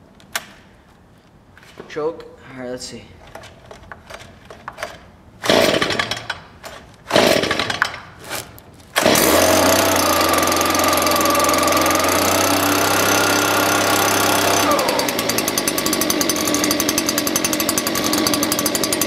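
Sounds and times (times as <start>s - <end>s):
recoil starter pulls: 3.2s - 19.0s
small two-stroke engine running: 5.4s - 6.3s, 7.1s - 7.9s, 9.0s - 19.0s.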